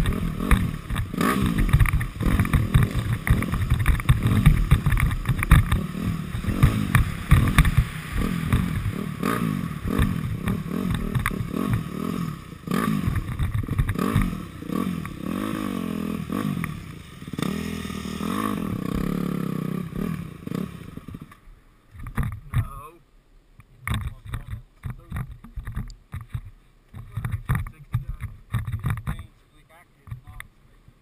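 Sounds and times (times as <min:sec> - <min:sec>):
bike rattling and knocking: 0:00.0 - 0:15.3, 0:22.0 - 0:22.8, 0:23.9 - 0:29.3
dirt bike engine revving: 0:00.0 - 0:21.4.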